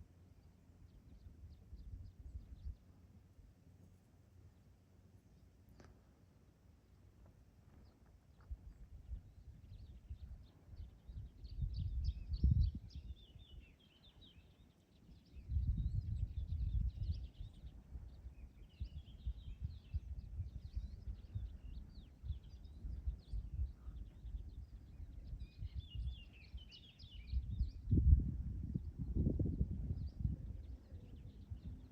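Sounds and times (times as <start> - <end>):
wind gusts: 7.6 - 31.9
birds twittering: 7.7 - 31.9.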